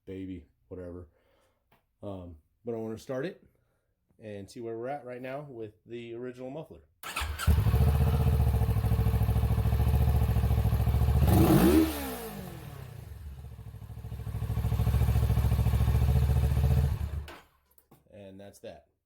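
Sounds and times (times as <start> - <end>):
motorcycle engine idling: 7.1 - 17.3.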